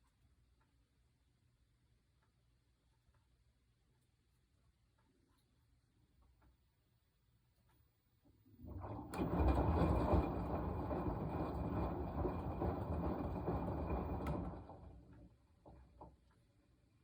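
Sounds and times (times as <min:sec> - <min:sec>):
washing machine drum turning: 0:08.5 - 0:16.3.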